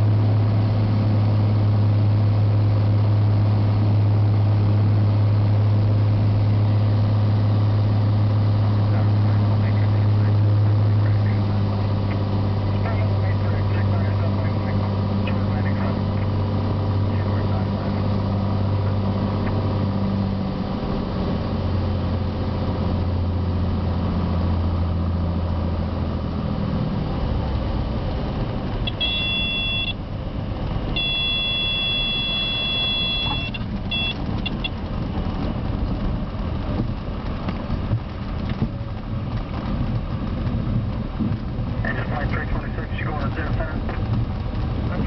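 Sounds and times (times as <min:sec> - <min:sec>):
aircraft engine hum: 0:00.0 - 0:45.0
high-pitched warning tones: 0:28.9 - 0:30.0, 0:31.0 - 0:34.7
short electronic blips: 0:28.9 - 0:30.0, 0:31.0 - 0:34.7.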